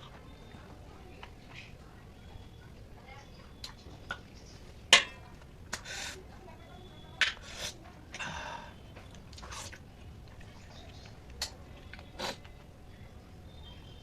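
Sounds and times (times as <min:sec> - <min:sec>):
person chewing: 0:09.1 - 0:12.4.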